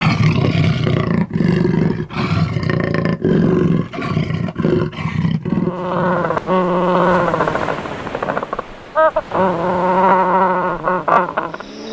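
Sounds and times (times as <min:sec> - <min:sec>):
low rough animal calls: 0:00.0 - 0:11.9
wavering animal calls: 0:05.5 - 0:11.9.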